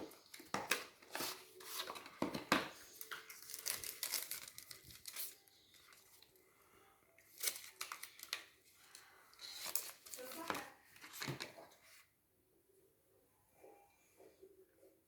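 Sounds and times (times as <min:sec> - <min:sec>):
packaging crinkling and tearing: 0:03.0 - 0:06.0, 0:07.3 - 0:08.6, 0:09.4 - 0:11.5.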